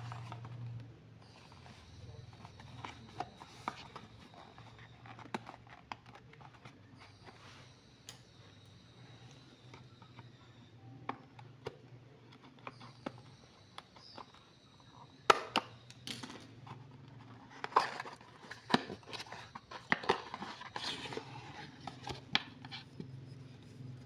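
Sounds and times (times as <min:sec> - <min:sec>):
packaging clicks and taps: 0:15.2 - 0:24.0
packaging crinkling and rustling: 0:16.4 - 0:24.0.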